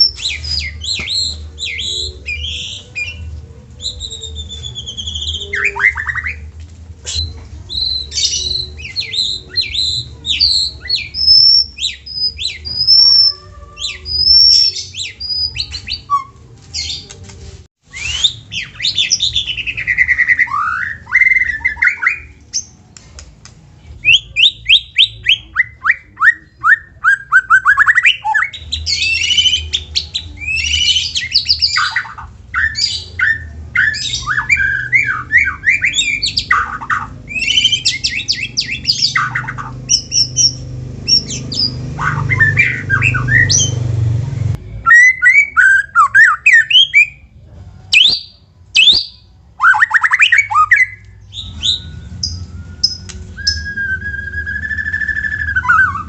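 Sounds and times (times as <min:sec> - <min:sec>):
songbird singing trills and whistles: 0:00.0 - 0:17.1, 0:17.8 - 0:22.8, 0:23.8 - 0:47.3, 0:47.9 - 0:56.0
low hum: 0:32.1 - 0:44.9, 0:51.0 - 0:56.0.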